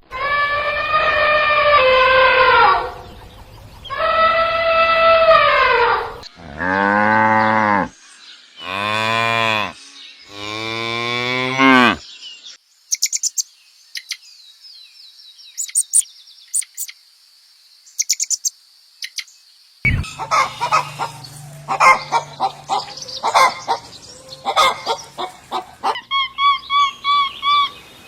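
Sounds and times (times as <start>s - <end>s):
cow mooing: 6.3s - 7.9s, 19.9s - 26.0s
small birds chirping: 12.2s - 17.1s, 17.7s - 28.0s.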